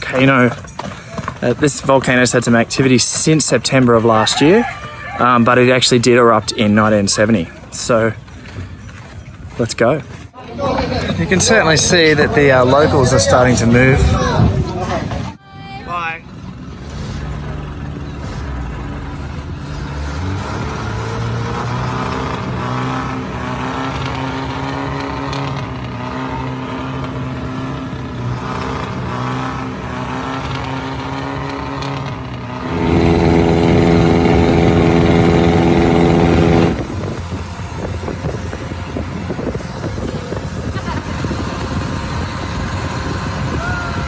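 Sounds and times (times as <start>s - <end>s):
loud engine close by: 10.4s - 15.4s, 16.0s - 44.0s
small engine running: 16.4s - 44.0s.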